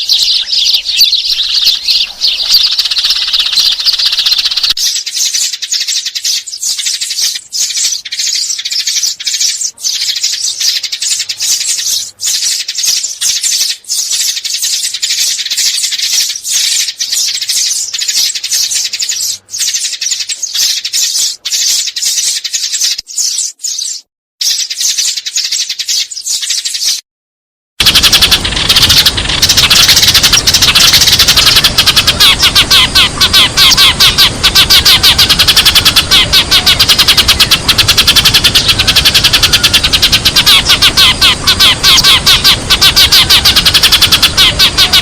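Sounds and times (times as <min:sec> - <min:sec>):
sparrows chirping: 0:00.0 - 0:27.0, 0:27.8 - 0:45.0.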